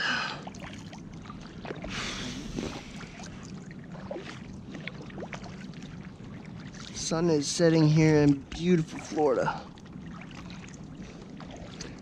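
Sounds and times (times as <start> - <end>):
steady low hum: 0.0 - 12.0
water sloshing around kayak: 0.0 - 12.0
water splashing: 0.0 - 12.0
small water drips: 8.4 - 12.0.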